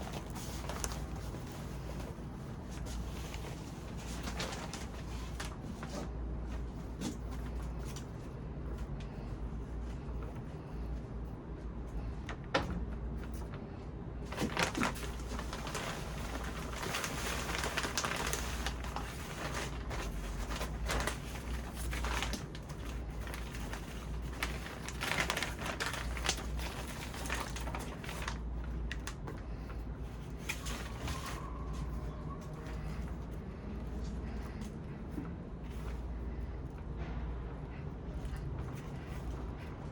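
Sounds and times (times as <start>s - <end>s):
plant rustling and crackling: 0.0s - 8.2s, 14.2s - 36.5s
steady low hum: 0.0s - 39.9s.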